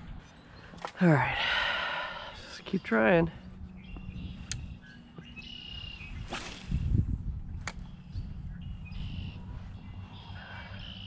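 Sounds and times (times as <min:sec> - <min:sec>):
fishing rod whooshing: 0:06.2 - 0:07.0.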